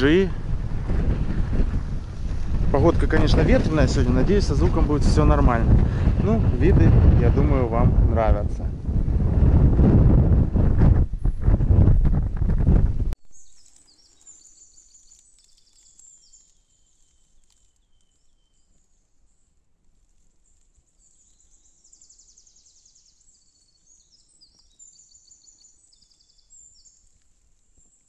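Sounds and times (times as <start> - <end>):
faint songbirds singing: 13.2 - 28.0.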